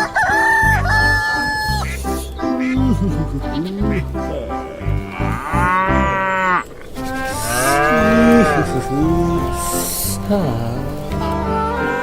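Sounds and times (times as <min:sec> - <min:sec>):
cow mooing: 0:03.0 - 0:12.0.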